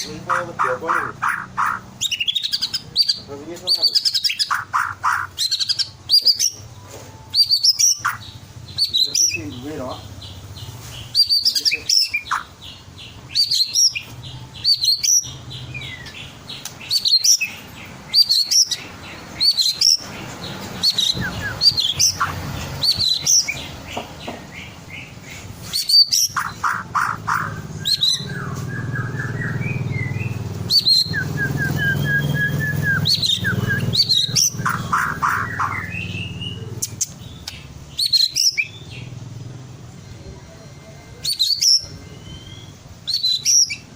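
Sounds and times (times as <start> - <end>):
bird trilling: 0.0 - 43.9
bird singing whistled phrases: 7.3 - 9.4, 11.2 - 12.5, 20.8 - 23.6, 25.7 - 38.9, 41.1 - 43.9.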